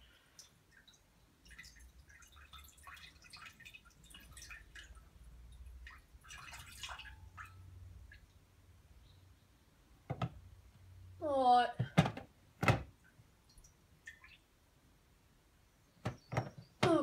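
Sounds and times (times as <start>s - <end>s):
water dripping and ticking: 0.0s - 9.2s, 12.9s - 14.7s.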